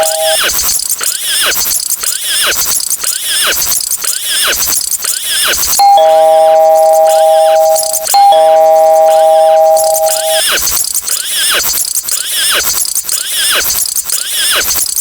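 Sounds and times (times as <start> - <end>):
held two-note electronic tone: 0.0 - 0.5, 5.8 - 10.6.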